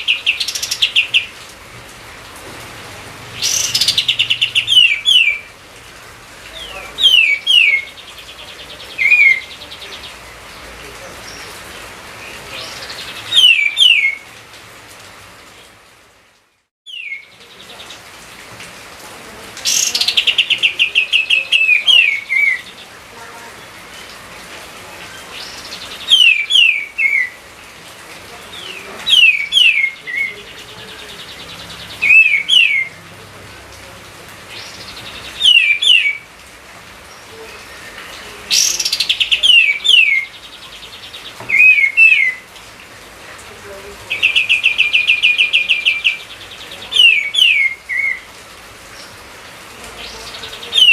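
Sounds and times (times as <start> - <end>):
bird trilling and whistling: 3.4 - 5.4, 13.3 - 14.2, 32.0 - 32.9, 35.4 - 36.2.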